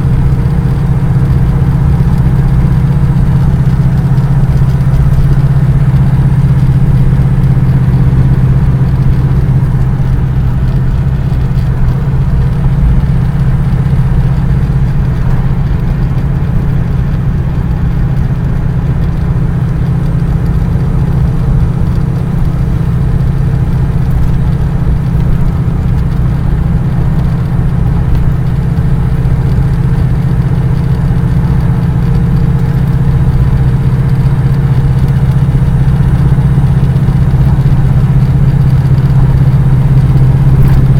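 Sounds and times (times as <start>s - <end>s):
vehicle engine droning: 0.0s - 40.9s.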